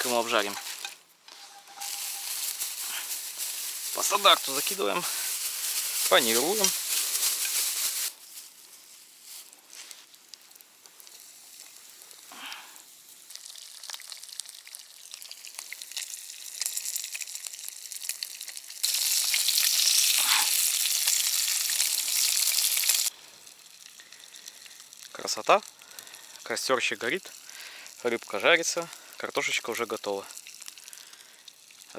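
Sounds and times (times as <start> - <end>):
fish frying in oil: 10.1 - 31.9.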